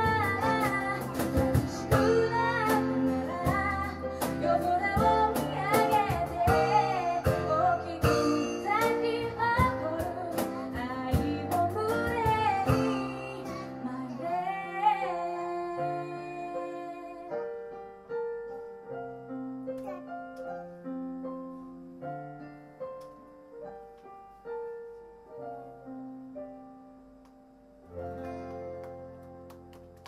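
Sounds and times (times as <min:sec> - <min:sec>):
acoustic band playing: 0:00.0 - 0:16.8, 0:28.0 - 0:30.0
woman singing: 0:00.0 - 0:17.5
piano notes: 0:00.0 - 0:30.0.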